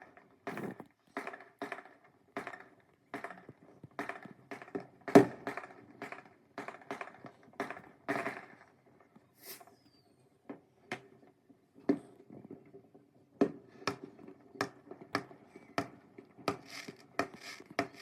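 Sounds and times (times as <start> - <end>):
fireworks bangs and pops: 0.4 - 8.7, 13.5 - 18.0.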